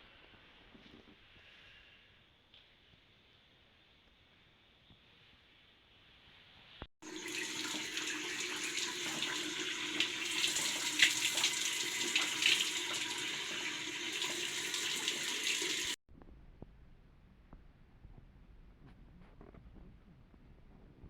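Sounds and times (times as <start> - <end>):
tap water running and splashing: 7.0 - 16.0.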